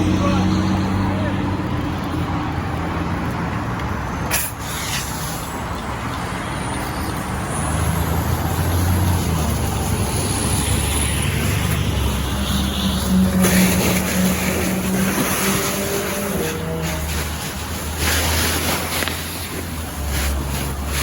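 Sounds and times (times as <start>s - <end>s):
sharp hiss: 4.3s - 5.7s.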